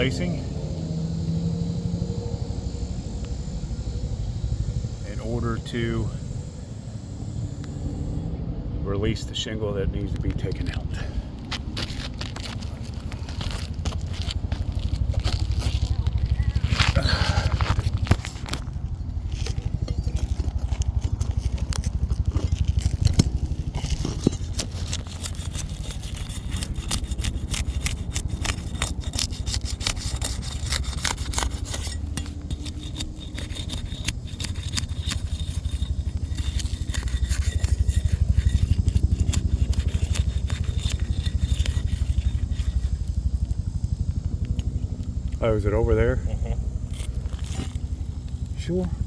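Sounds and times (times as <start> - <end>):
steady low rumble: 0.0 - 49.0
roof shingles scraping: 11.3 - 43.0.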